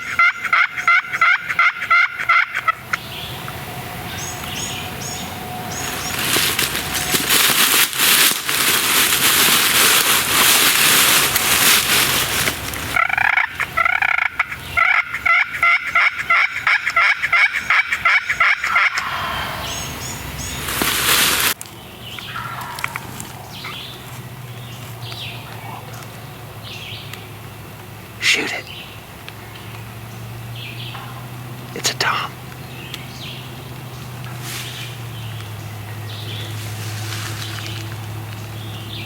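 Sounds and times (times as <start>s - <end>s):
turkey yelping: 0.0s - 3.1s, 12.9s - 20.8s, 22.2s - 24.0s
steady rushing noise: 18.7s - 21.6s.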